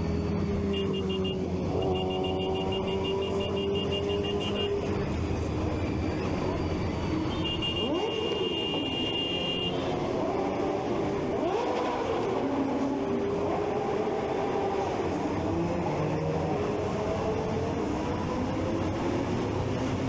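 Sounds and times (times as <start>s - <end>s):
motorcycle engines revving: 0.0s - 20.0s
high-pitched beeping: 0.7s - 4.8s
steady high tone: 0.7s - 5.2s.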